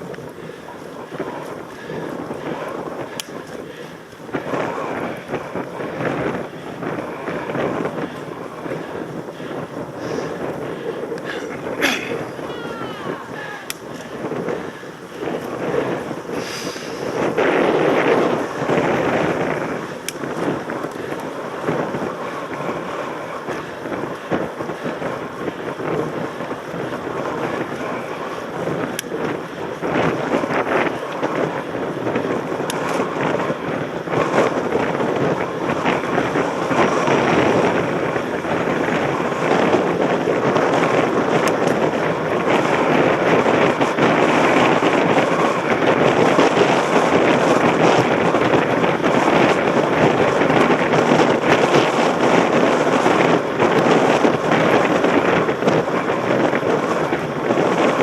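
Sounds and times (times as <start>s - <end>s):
bike crackling and rattling: 0.0s - 58.0s
wind rushing over microphone: 0.0s - 58.0s.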